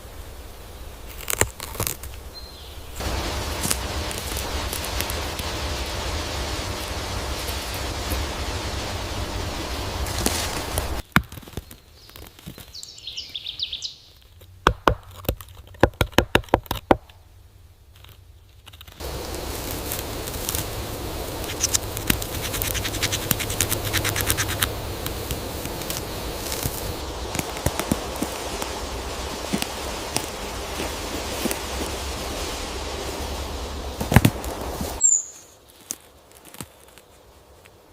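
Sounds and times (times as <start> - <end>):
wind and rustling leaves: 0.0 - 37.9
small scratches and ticks: 1.0 - 2.3, 3.0 - 8.5, 10.0 - 12.8, 17.9 - 33.3, 35.6 - 37.9
short high bird chirp: 35.0 - 35.6.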